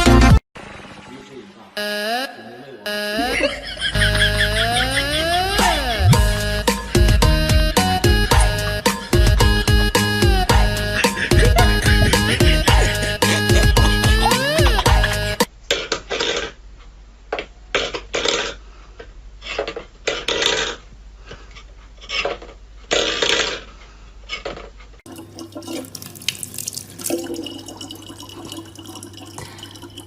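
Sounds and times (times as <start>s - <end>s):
low hum: 3.2s - 15.4s
tap water running: 25.1s - 30.0s
water splashing: 25.1s - 30.0s.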